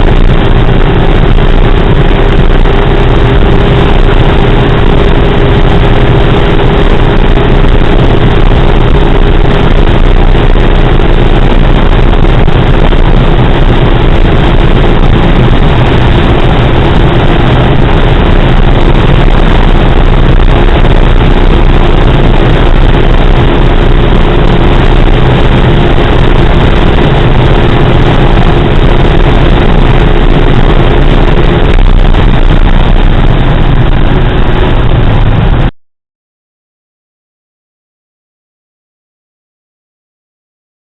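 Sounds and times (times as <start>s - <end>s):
car engine drone: 0.0s - 35.8s
wind noise: 0.0s - 35.8s.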